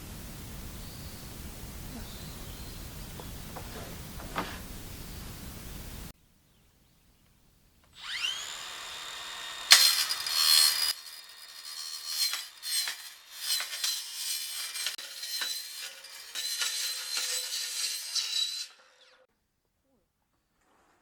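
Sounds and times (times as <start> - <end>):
scraping on lumber: 8.3 - 19.2.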